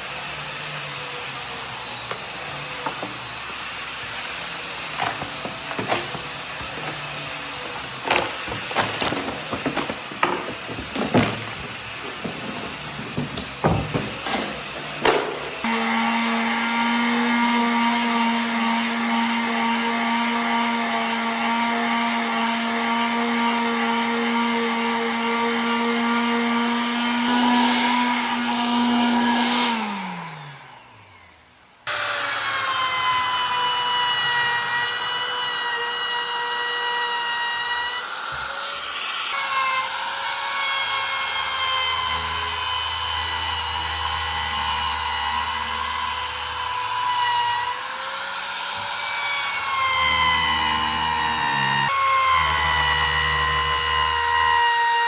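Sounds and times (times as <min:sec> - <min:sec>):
power tool motor whining: 0:00.0 - 0:19.6, 0:24.8 - 0:55.0
higher-pitched power tool motor: 0:00.0 - 0:20.5, 0:31.9 - 0:55.0.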